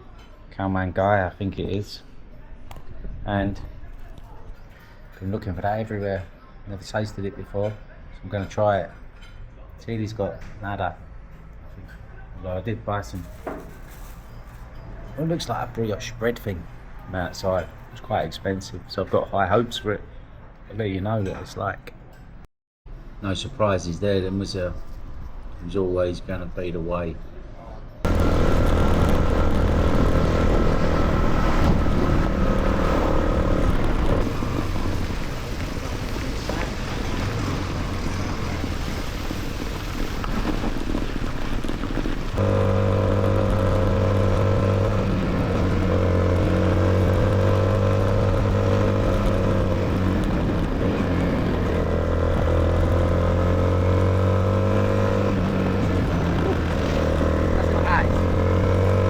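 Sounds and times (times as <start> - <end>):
wind and road noise: 9.9 - 59.0
motorcycle engine running: 28.1 - 38.8, 40.4 - 59.0.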